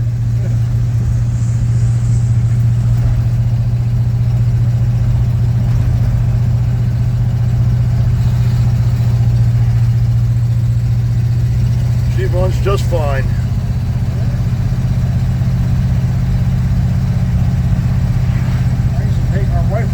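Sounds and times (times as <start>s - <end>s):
pickup truck engine droning: 0.0s - 19.9s.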